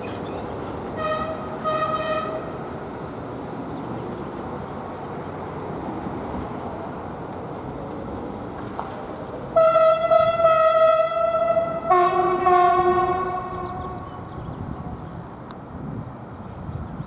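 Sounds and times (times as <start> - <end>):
train horn blasts: 1.0 - 2.7, 9.6 - 15.2.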